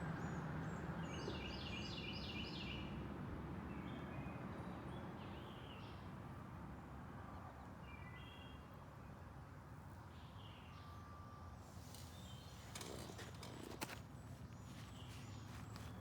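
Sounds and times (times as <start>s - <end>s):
faint outdoor background noise: 0.0s - 16.0s
rustling: 11.7s - 16.0s.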